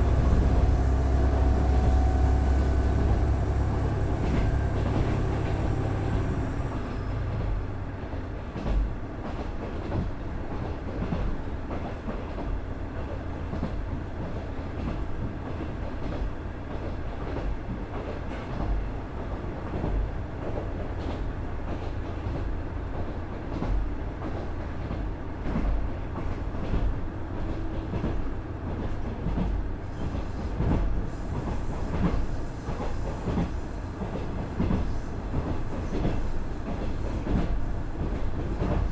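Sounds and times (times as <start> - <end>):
diesel engine rumble: 0.0 - 7.6.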